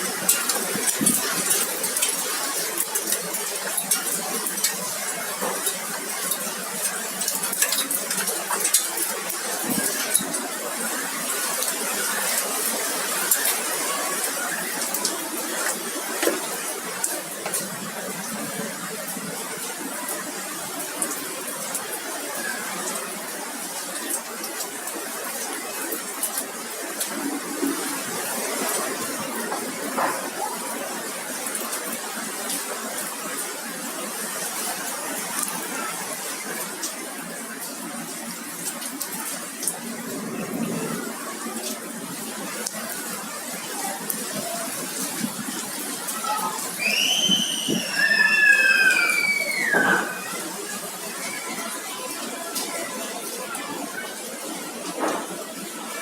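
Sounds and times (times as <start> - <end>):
rain hissing: 0.0 - 56.0
hailstones clicking on hard surfaces: 0.1 - 10.5.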